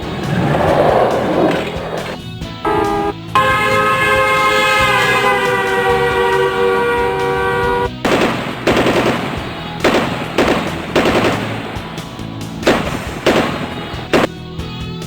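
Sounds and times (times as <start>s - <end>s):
background music: 0.0s - 15.0s
gunshots: 5.0s - 14.4s.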